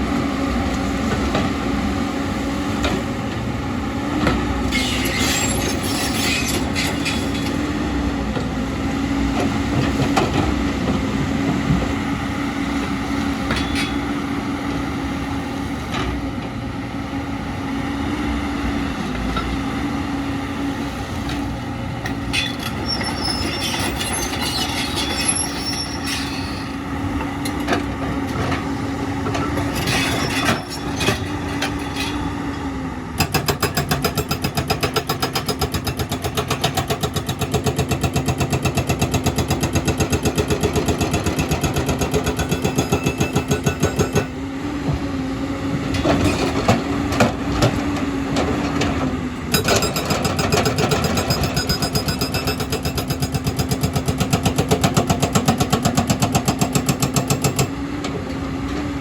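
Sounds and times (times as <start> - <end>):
metallic scraping and squealing: 4.6 - 7.6, 22.3 - 26.9, 29.4 - 32.4.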